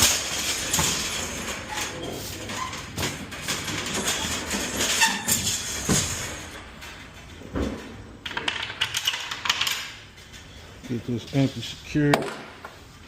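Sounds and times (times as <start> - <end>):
rapid clicks and rattles: 0.0 - 7.4.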